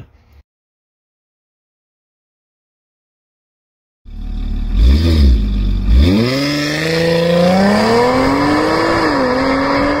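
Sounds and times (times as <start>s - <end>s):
car engine accelerating: 4.1s - 10.0s.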